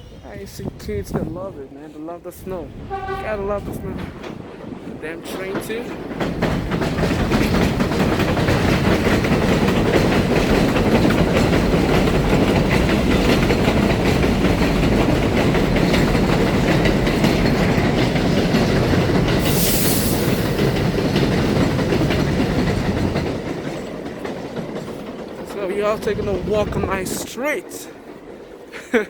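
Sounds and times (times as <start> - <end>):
train rumbling past: 0.0 - 29.0
wheels clattering over rails: 2.5 - 28.7
high hiss: 19.4 - 20.6.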